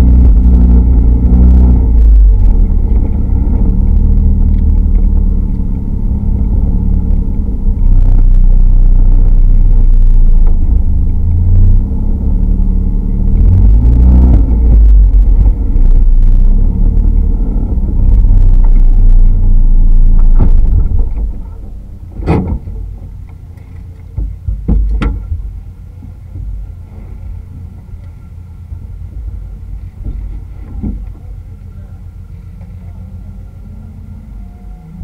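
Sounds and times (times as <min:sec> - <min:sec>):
car engine droning: 0:00.0 - 0:35.0.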